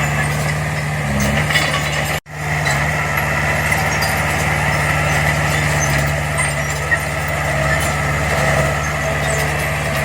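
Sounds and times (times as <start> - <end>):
diesel engine of earthmoving machinery: 0.0 - 10.0.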